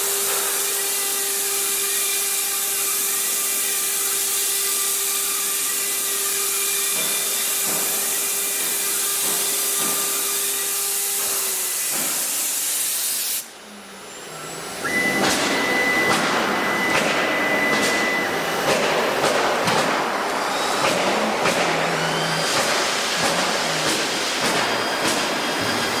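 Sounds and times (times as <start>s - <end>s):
router spindle cutting wood: 12.5s - 26.0s.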